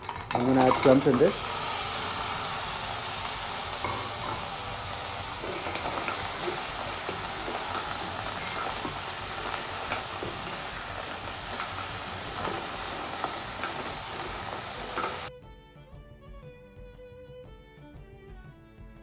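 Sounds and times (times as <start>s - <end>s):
clams sizzling in hot oil: 0.0s - 15.3s
spatula knocking in wok: 0.0s - 15.3s.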